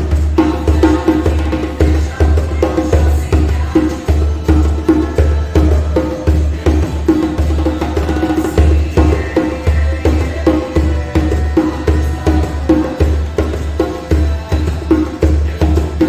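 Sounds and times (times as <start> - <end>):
djembe drumming: 0.0 - 16.0.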